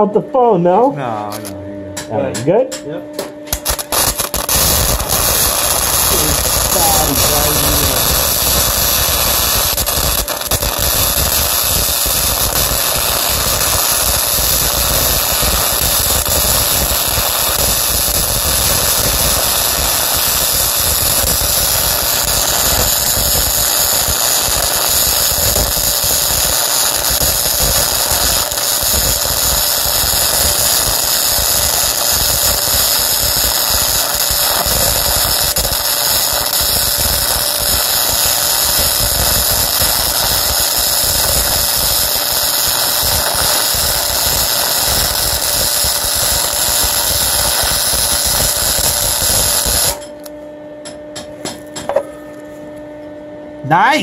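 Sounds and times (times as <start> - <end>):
welding arc crackling and hissing: 3.5 - 50.3.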